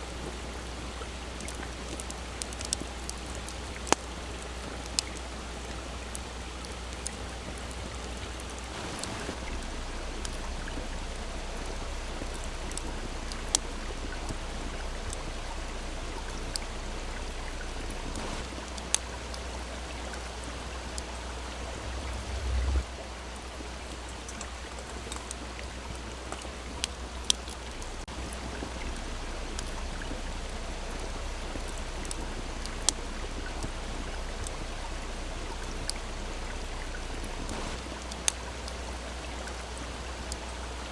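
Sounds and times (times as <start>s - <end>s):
stream babbling: 0.0s - 40.9s
campfire crackling and popping: 1.2s - 22.9s, 23.6s - 40.4s
low rumble: 8.6s - 24.2s, 26.6s - 38.2s.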